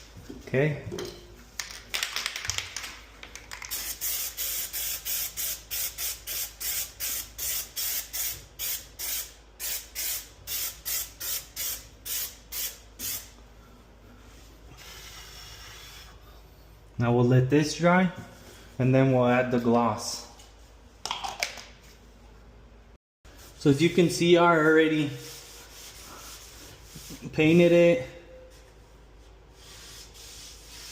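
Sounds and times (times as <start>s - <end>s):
spray can rattling: 1.6s - 13.2s.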